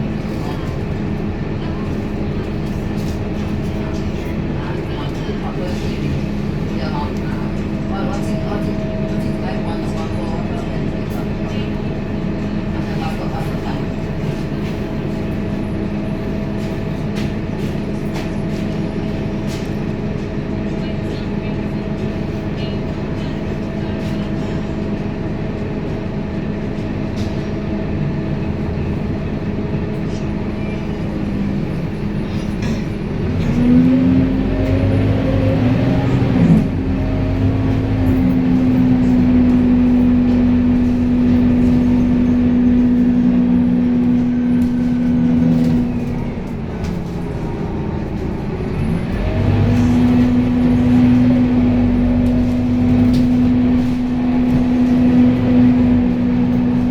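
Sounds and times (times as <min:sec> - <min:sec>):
vehicle motor hum: 0:33.2 - 0:56.9.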